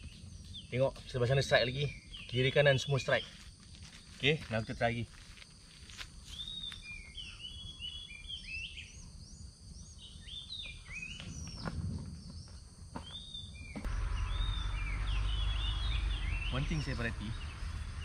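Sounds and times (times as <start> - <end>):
birds chirping: 0.0 - 18.0
low outdoor rumble: 13.7 - 18.0.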